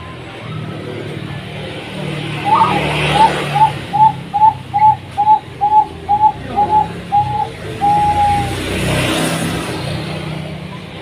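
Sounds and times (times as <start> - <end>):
dove cooing: 2.3 - 8.6.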